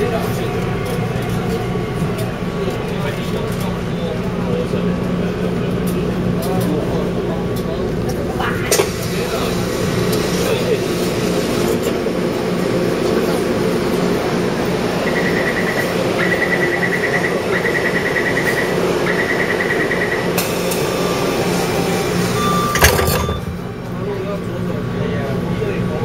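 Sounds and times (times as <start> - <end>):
train equipment hum: 0.0 - 26.0
rapid high electronic beeping: 15.1 - 20.3.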